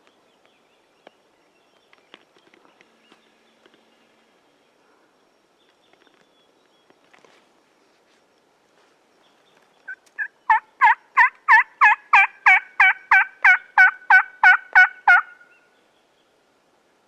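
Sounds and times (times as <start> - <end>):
turkey yelps: 9.9 - 15.5.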